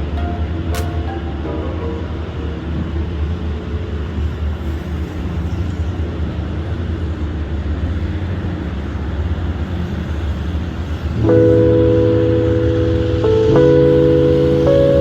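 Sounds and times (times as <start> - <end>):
sustained musical chord: 0.0 - 3.4, 11.2 - 15.0
traffic rumble on a bridge: 0.0 - 15.0.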